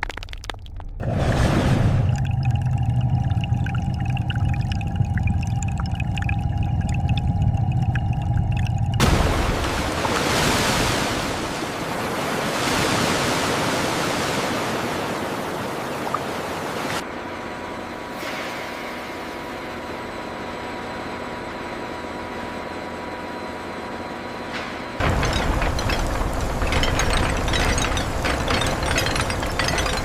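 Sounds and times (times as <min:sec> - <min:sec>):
faint steady hum: 0:02.0 - 0:09.8.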